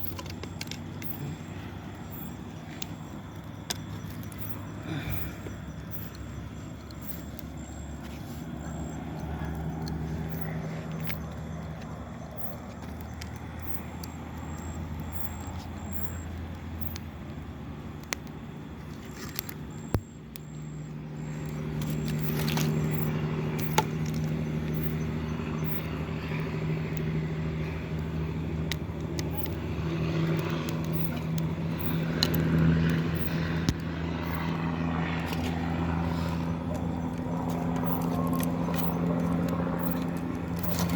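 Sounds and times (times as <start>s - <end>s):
steady low hum: 0.0s - 40.9s
campfire crackling and popping: 9.3s - 36.0s.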